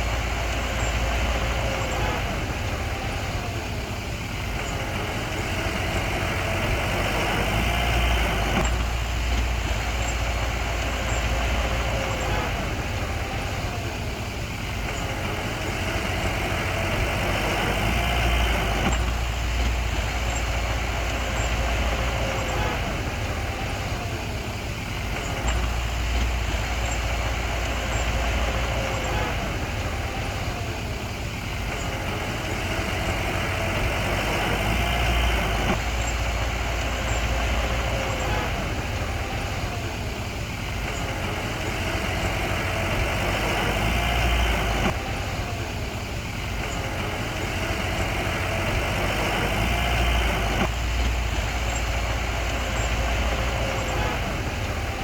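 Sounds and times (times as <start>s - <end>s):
diesel engine revving under load: 0.0s - 55.0s.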